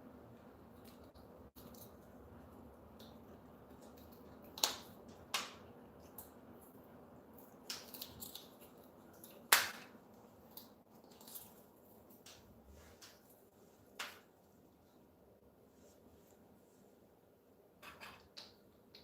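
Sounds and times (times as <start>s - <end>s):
parrot crunching plastic straw: 7.3s - 12.2s.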